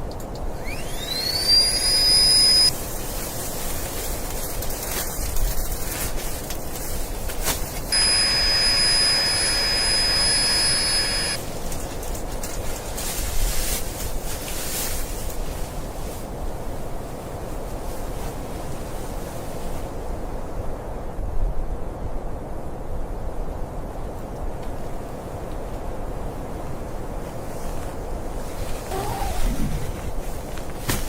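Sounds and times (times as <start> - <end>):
high thin whistle: 0.6 - 2.7, 7.9 - 11.4
snowstorm wind rushing: 25.0 - 30.8.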